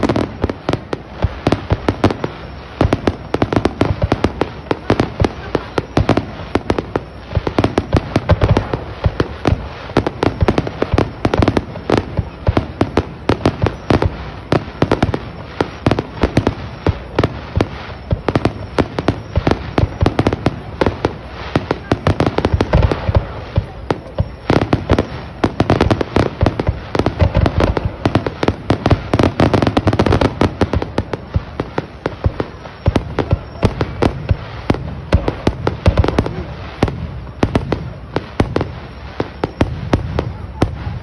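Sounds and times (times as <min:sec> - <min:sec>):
firework crackle: 0:00.0 - 0:41.0.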